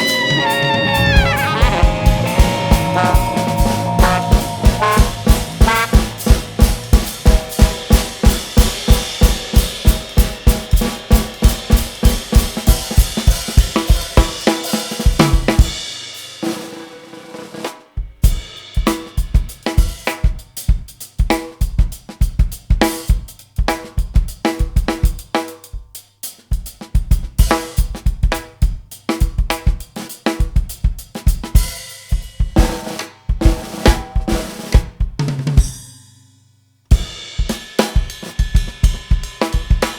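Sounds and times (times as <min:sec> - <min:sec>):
jazz fusion band playing: 0:00.0 - 0:07.2
drum kit break: 0:00.0 - 0:17.0, 0:18.0 - 0:35.9, 0:36.9 - 0:39.9.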